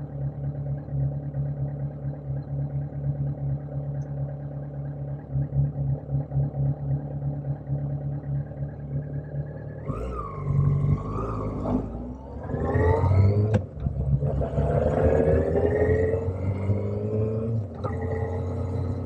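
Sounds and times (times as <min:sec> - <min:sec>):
motorcycle engine revving: 0:08.6 - 0:19.0.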